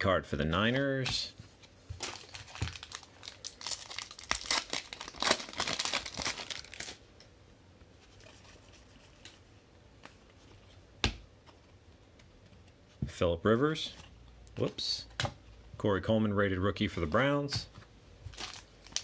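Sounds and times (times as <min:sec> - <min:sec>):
foil wrapper tearing and crinkling: 0:02.0 - 0:07.0, 0:18.3 - 0:19.0.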